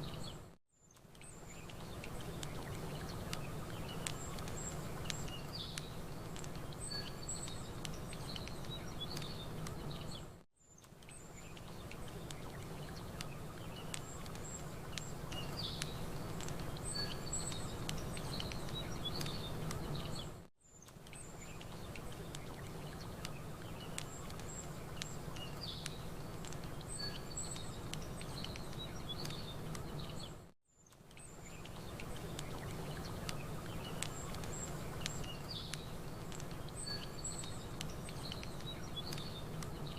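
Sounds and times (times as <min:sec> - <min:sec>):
small birds chirping: 0:00.0 - 0:39.9
campfire crackling: 0:00.9 - 0:39.9.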